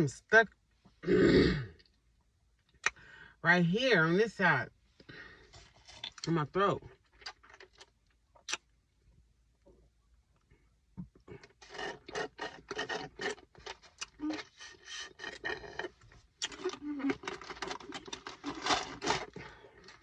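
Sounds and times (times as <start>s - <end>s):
drinking straw slurping: 11.4s - 19.4s.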